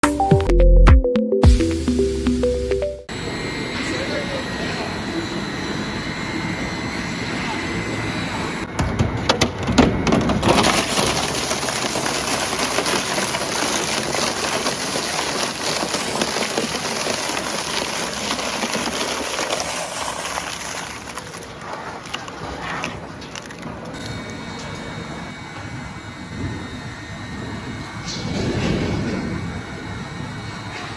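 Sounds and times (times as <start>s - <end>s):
wood chipper shredding wood: 9.1s - 24.1s.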